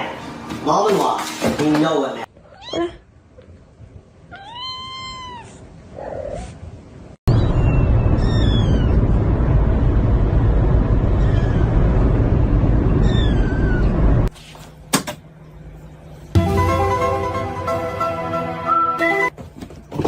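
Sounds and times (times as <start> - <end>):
cat meowing: 2.4 - 3.0, 4.3 - 6.4, 7.4 - 9.0, 13.0 - 14.0.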